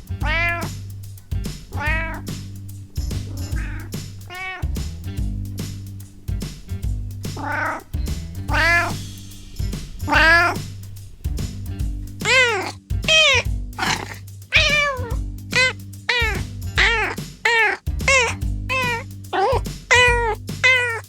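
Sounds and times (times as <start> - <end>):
cat meowing: 0.2 - 0.7, 1.7 - 2.3, 3.2 - 4.7, 7.4 - 7.9, 8.5 - 9.0, 10.0 - 10.6, 12.2 - 21.0.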